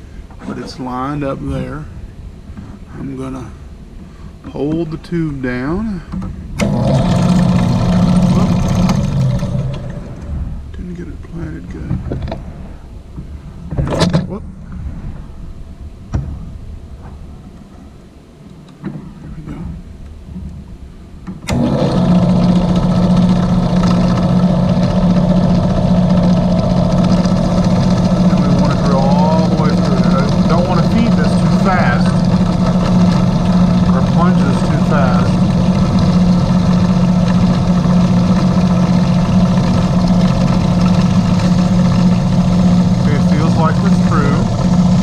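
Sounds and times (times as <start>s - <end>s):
electric drill humming: 6.6s - 10.4s, 21.5s - 45.0s.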